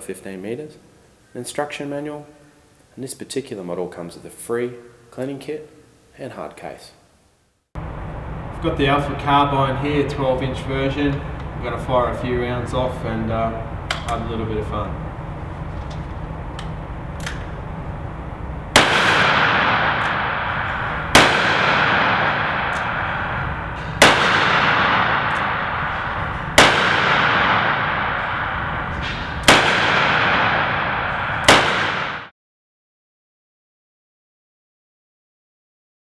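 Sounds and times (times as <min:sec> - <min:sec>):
revolver carbine gunshots: 0:18.7 - 0:32.3.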